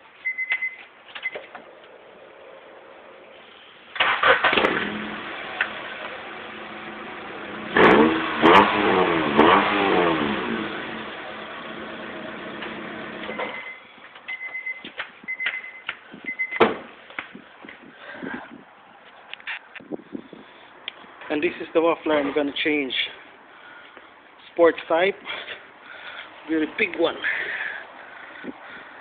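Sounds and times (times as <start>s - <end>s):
short beeps: 0.2s - 1.4s, 13.3s - 16.6s.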